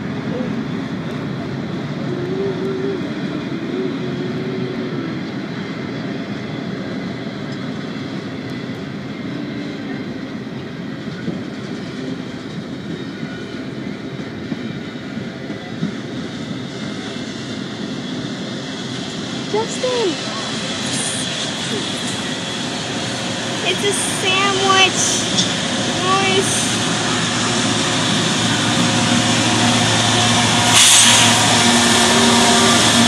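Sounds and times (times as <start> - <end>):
steel wheels rumbling on rail: 0.0 - 33.0.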